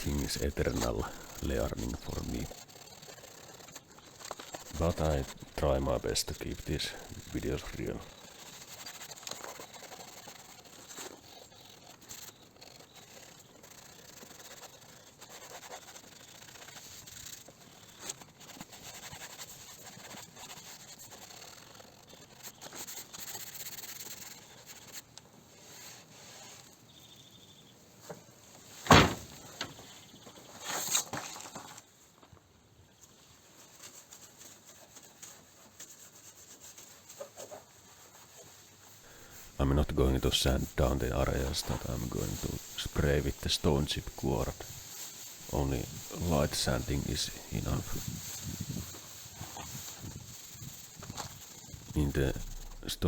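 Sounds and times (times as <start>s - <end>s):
sandpaper rubbing scrape: 0.0s - 26.8s, 33.2s - 53.0s
sharp knock: 28.9s - 29.2s.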